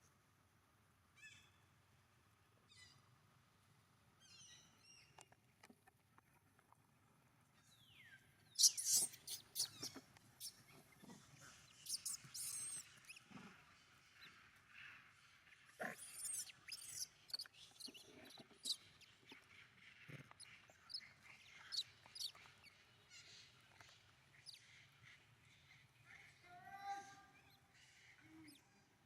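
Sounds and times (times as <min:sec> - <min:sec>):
high-pitched animal chirps and squeaks: 0:08.6 - 0:10.8, 0:11.5 - 0:13.3, 0:15.8 - 0:19.4, 0:20.4 - 0:22.8.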